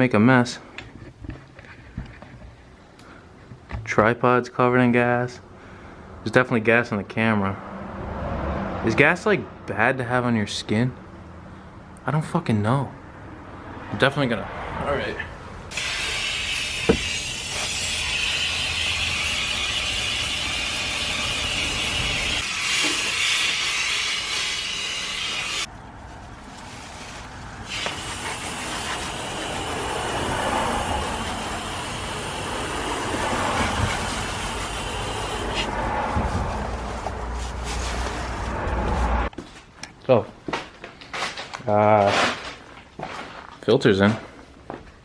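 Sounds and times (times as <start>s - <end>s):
hissing spray: 15.7s - 25.7s, 27.6s - 35.8s.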